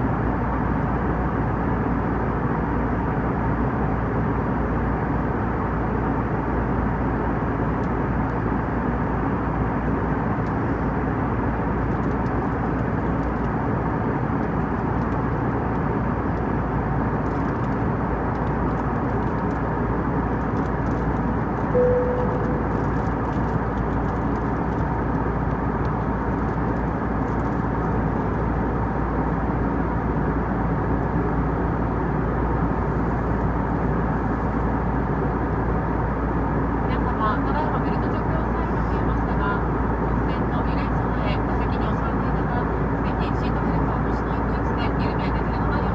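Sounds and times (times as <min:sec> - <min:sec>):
airplane cabin engine rumble: 0:00.0 - 0:45.9
brief cabin tone: 0:21.8 - 0:23.2.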